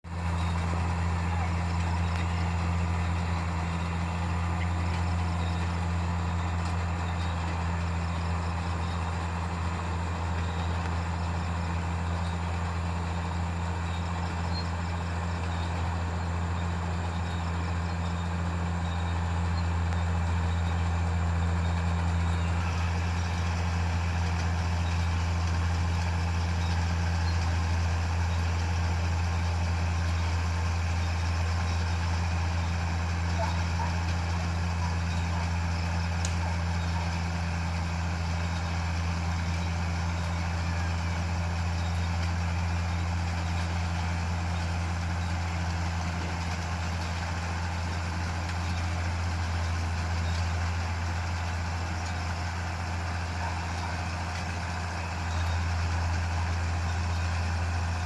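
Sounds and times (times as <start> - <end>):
heavy machine engine droning: 0.0 - 58.0.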